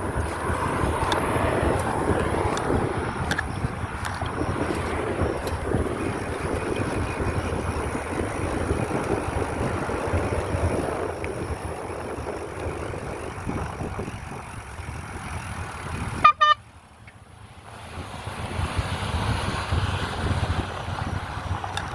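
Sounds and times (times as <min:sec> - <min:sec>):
wind rushing over microphone: 0:00.0 - 0:16.3, 0:17.7 - 0:21.9
road noise: 0:00.0 - 0:21.9.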